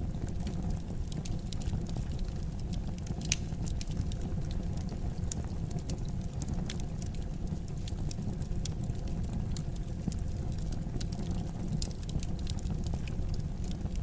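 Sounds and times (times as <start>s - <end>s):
fire crackling: 0.0s - 14.0s
low rumble of flames: 0.0s - 14.0s.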